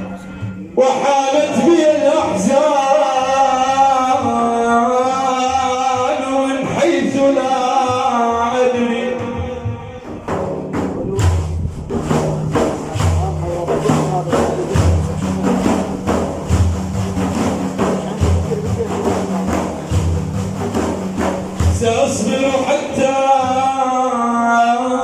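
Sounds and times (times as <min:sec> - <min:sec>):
person singing verses: 0:00.0 - 0:11.5, 0:21.6 - 0:25.0
frame drums with jingles: 0:00.0 - 0:23.8.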